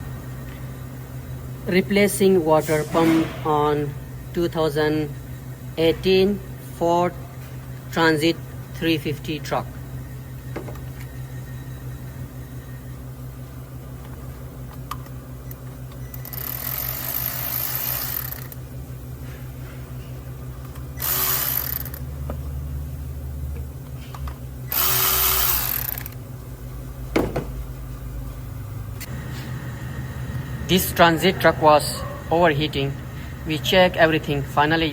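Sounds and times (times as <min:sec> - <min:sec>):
low mechanical hum: 0:00.0 - 0:34.9
power tool bursts: 0:16.2 - 0:18.6, 0:21.0 - 0:22.0, 0:24.7 - 0:26.2.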